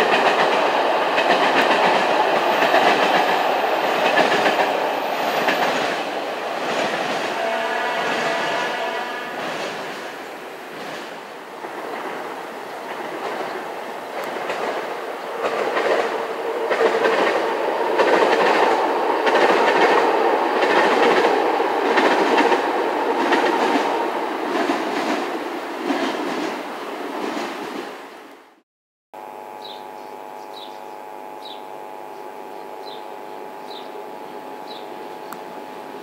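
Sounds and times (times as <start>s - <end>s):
train wheels clicking on rail joints: 0.0s - 27.9s
steady hum: 29.2s - 36.0s.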